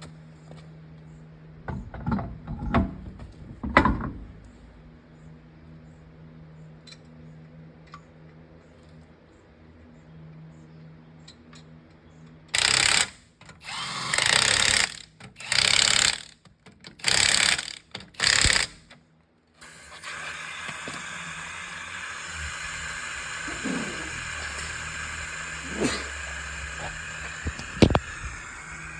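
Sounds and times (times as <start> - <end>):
power tool bursts: 12.6 - 16.3, 17.0 - 18.8, 19.6 - 28.9
steady hiss: 19.6 - 28.9.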